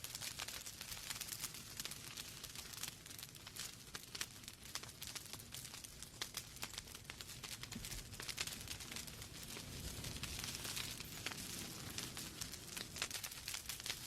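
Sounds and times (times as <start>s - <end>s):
logs crackling and popping: 0.0s - 14.0s
flames hissing: 0.1s - 14.0s.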